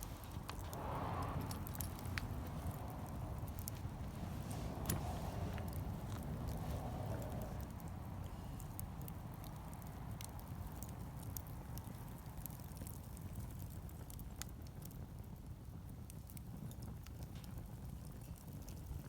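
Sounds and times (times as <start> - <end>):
low steady rumble: 0.0 - 13.8
wood fire crackling: 0.0 - 19.0.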